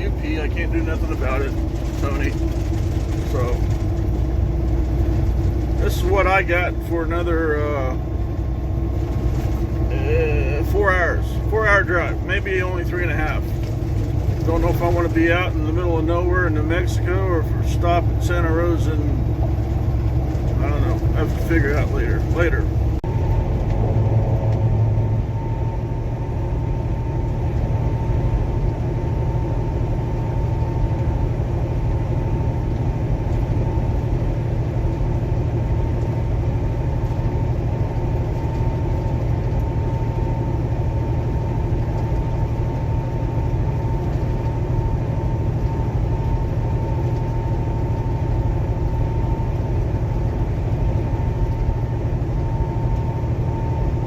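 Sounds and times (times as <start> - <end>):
road noise: 0.0 - 29.6
diesel engine drone: 0.0 - 54.0
faint steady whine: 0.0 - 54.0.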